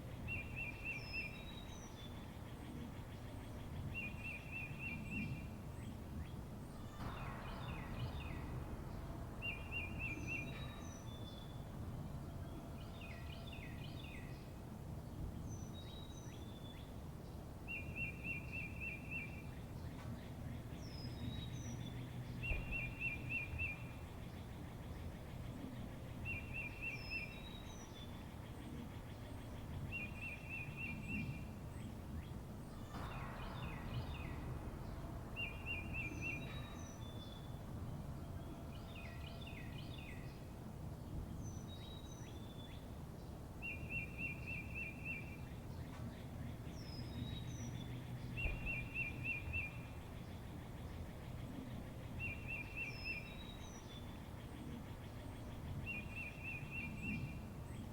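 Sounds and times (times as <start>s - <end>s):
low background rumble: 4.7s - 14.5s, 19.4s - 43.6s
birds chirping: 29.1s - 40.0s.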